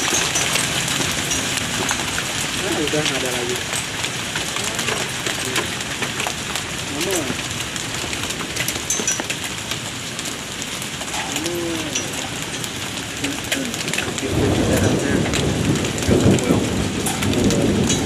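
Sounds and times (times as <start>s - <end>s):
rain pouring: 0.0s - 18.0s
raindrops ticking on hard surfaces: 0.0s - 18.0s
thunder rumbling: 10.4s - 18.0s.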